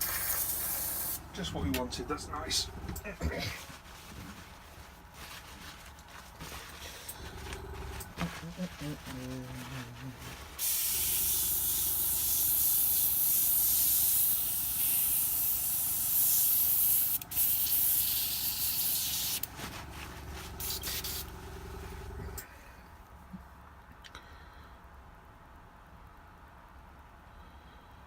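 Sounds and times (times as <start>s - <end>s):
airbrush spraying hiss: 0.0s - 1.3s, 10.6s - 19.5s, 20.6s - 21.4s
compressor humming: 0.0s - 22.9s.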